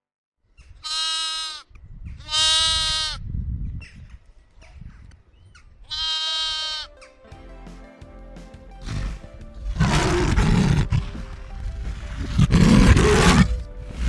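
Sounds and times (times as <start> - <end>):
farm animal bleating: 0.8 - 1.6, 2.2 - 3.2, 5.9 - 7.0, 8.8 - 14.0.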